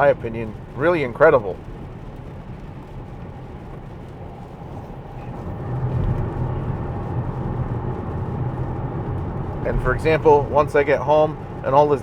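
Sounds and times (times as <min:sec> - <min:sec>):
tyres on wet road: 0:00.0 - 0:12.0
low hum: 0:04.0 - 0:11.7.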